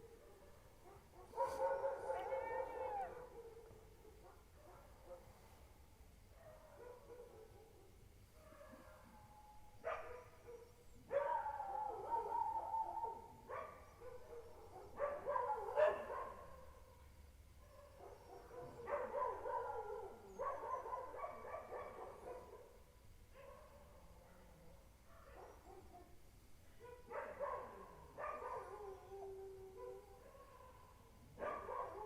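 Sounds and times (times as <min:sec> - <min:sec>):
dogs howling: 0:01.3 - 0:03.6.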